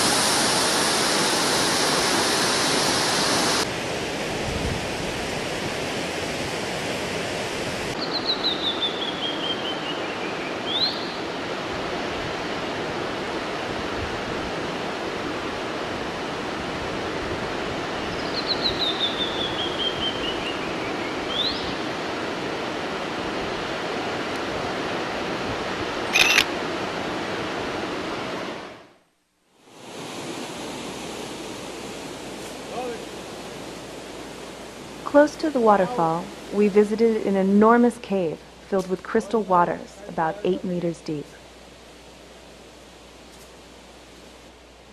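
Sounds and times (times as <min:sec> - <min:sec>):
waterfall roar: 0:00.0 - 0:08.0.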